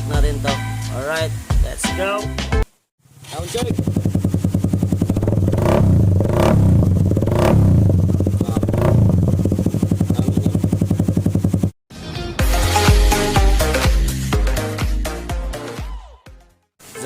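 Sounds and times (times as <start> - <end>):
motorcycle engine idling and revving: 3.0 - 11.8.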